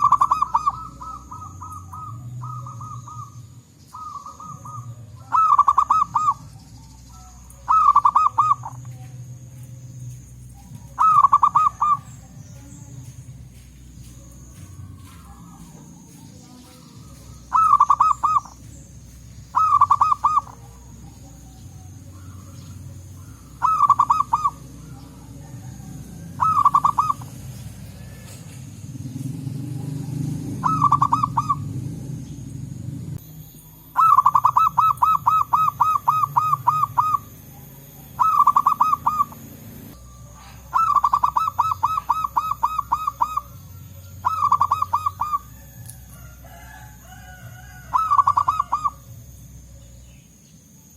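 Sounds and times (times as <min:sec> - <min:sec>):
low rumble: 0:00.0 - 0:33.7
doves cooing: 0:00.0 - 0:50.8.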